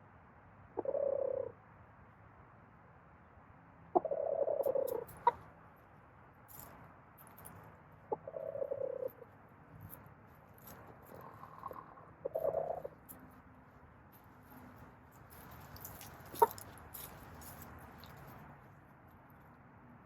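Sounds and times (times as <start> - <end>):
hens cooing: 0.8 - 1.6, 4.0 - 5.4, 8.1 - 9.2, 11.1 - 13.0.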